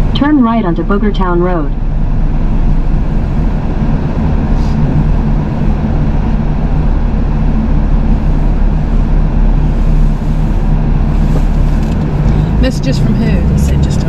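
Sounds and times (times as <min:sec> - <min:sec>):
truck engine and road noise: 0:00.0 - 0:14.0.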